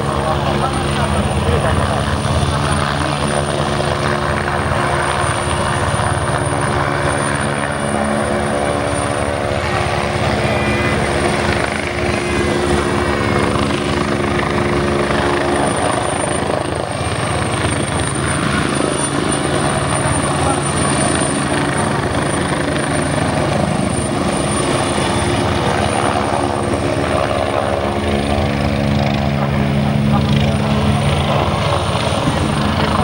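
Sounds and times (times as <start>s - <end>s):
helicopter hovering: 0.0s - 33.0s
high whine: 5.2s - 16.7s.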